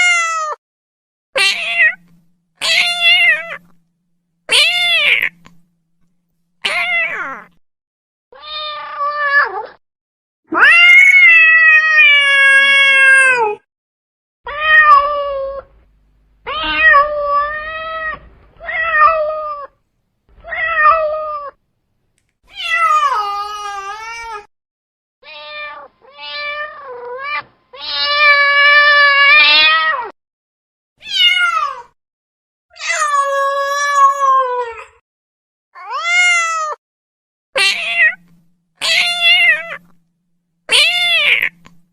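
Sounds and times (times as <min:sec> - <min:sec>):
cat meowing: 0:01.4 - 0:03.8, 0:04.5 - 0:05.6, 0:06.6 - 0:07.6, 0:08.4 - 0:09.8, 0:10.5 - 0:13.6, 0:14.5 - 0:15.7, 0:16.4 - 0:19.8, 0:25.2 - 0:30.1, 0:31.0 - 0:31.9, 0:35.8 - 0:36.8, 0:37.6 - 0:40.0, 0:40.7 - 0:41.8.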